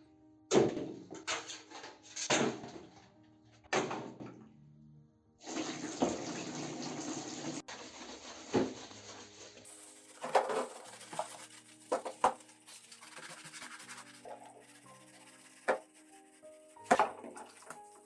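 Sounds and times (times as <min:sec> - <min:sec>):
background music: 0:00.0 - 0:18.0
water running: 0:05.4 - 0:18.0.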